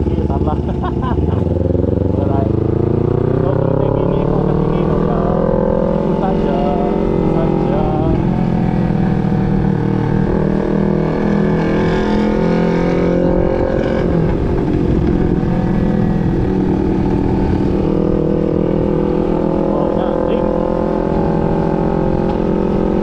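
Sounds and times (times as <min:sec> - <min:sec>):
motorcycle engine running: 0:00.0 - 0:23.0
wind noise: 0:04.9 - 0:23.0.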